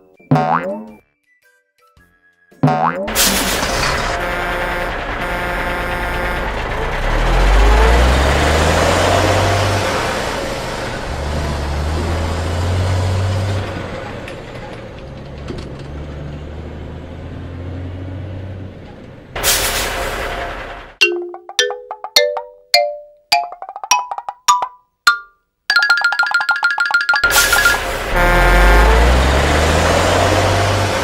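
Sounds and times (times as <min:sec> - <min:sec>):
truck engine revving: 0:03.1 - 0:21.0, 0:27.3 - 0:31.0
air brake hiss: 0:19.4 - 0:20.2.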